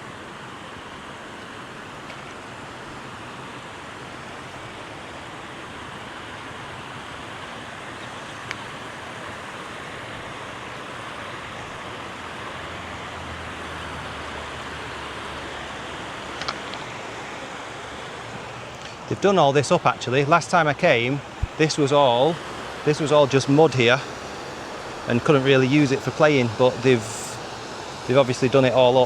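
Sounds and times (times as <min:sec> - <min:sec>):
river water flowing: 0:00.0 - 0:29.0.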